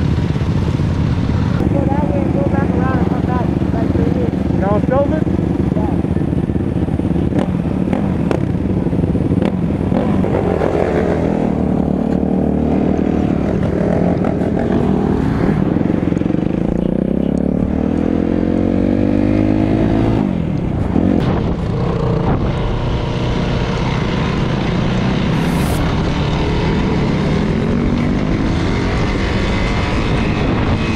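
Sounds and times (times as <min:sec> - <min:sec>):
off-road vehicle engine accelerating: 0:07.1 - 0:30.9.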